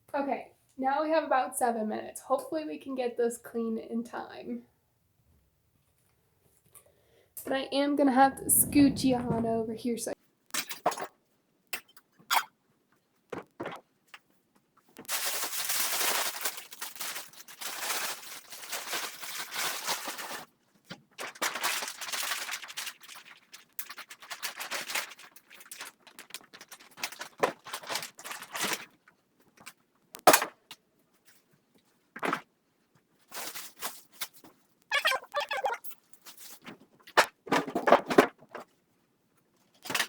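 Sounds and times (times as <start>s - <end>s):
crackly scrubbing and rustling: 7.4s - 11.0s, 12.9s - 30.1s, 31.1s - 40.0s.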